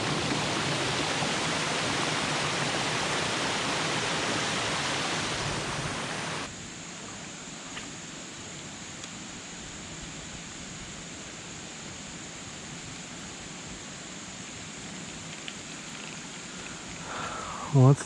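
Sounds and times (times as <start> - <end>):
water rushing over waterfall: 0.0 - 6.5.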